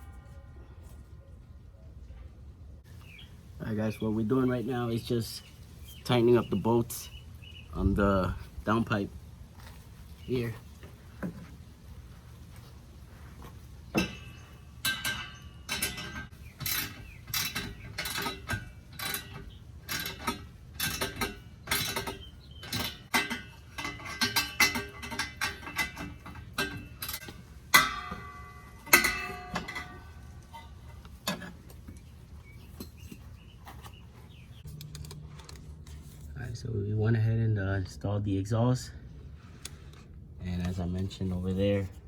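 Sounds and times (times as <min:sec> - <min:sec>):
wrench clinking on bolts: 0:13.9 - 0:32.1.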